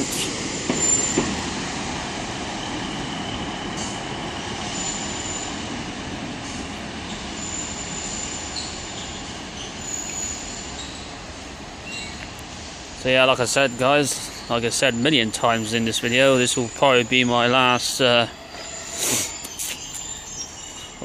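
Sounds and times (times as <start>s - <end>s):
train rumbling: 0.0s - 21.0s
high-pitched wheel squeals: 0.7s - 1.4s, 2.6s - 5.6s, 7.1s - 11.2s, 16.0s - 21.0s.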